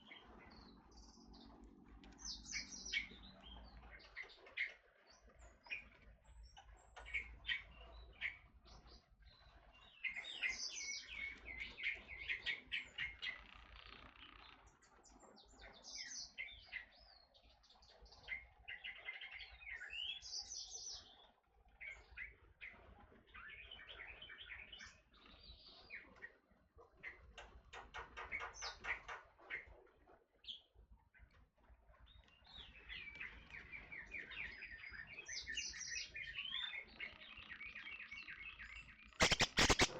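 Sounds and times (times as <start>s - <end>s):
oriole chirps and whistles: 39.2s - 39.9s.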